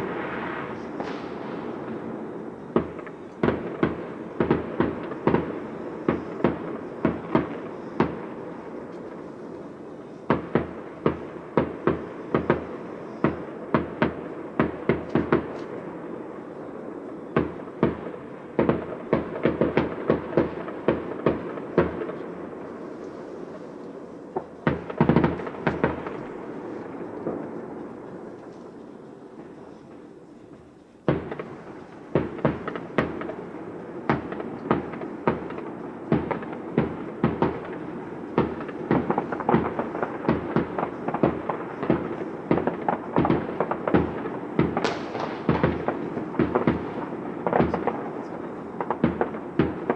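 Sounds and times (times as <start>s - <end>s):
fireworks bursting with bangs: 0.0s - 49.9s.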